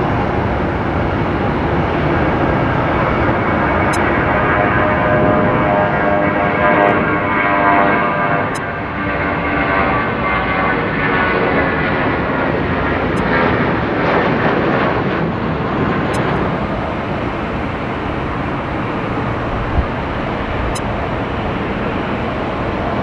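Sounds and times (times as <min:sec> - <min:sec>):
airliner jet rumble: 0:00.0 - 0:23.0
jet engine fan whine: 0:00.0 - 0:23.0.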